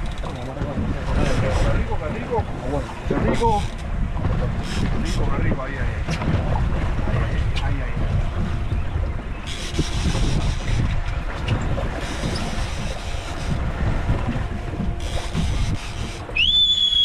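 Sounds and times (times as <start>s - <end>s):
water and boat noise: 0.0s - 17.0s
wind buffeting microphone: 0.0s - 17.0s
loud high whistle: 16.4s - 17.0s.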